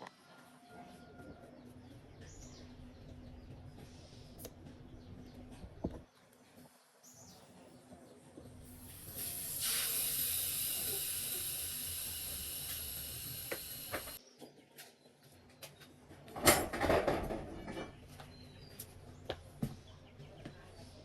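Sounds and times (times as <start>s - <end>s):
pressurised hiss: 8.6s - 14.2s.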